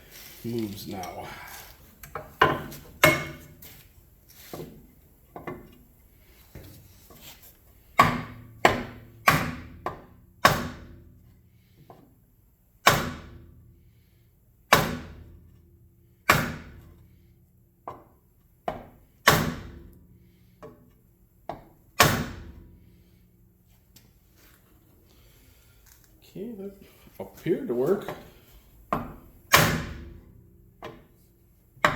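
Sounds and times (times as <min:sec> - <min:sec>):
hammer striking metal rim: 0:02.5 - 0:03.4.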